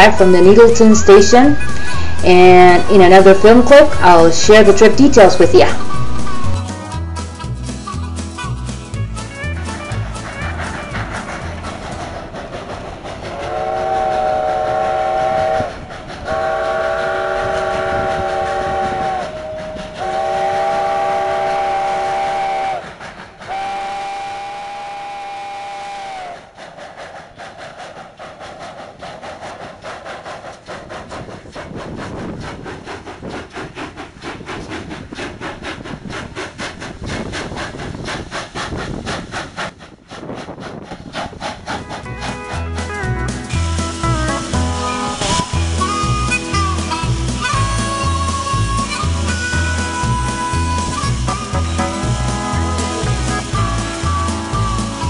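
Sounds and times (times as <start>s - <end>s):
steam locomotive chuffing: 0.0s - 55.0s
chime steam whistle blasts: 0.1s - 6.6s, 13.4s - 22.8s, 23.5s - 26.4s, 43.8s - 55.0s.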